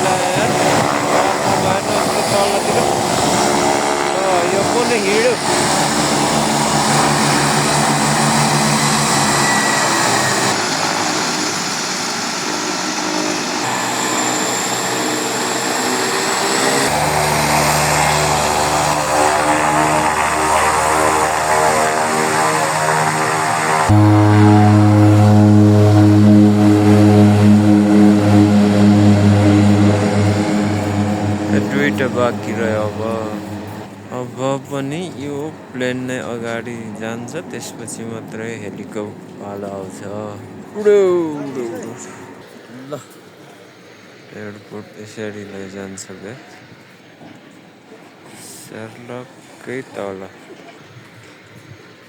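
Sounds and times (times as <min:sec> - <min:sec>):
low rhythmic pulsing: 0:00.0 - 0:10.6, 0:13.7 - 0:42.6
aircraft engines and propeller: 0:00.0 - 0:52.0.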